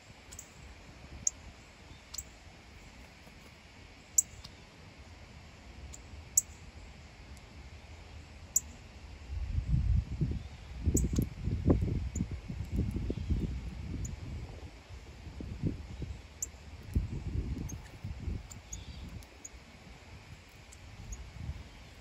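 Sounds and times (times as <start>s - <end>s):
bird chip calls: 17.6s - 19.6s.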